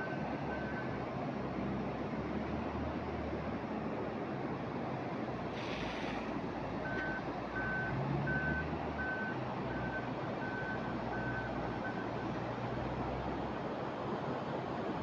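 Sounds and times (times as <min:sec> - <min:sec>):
brief hiss: 0:05.5 - 0:06.4.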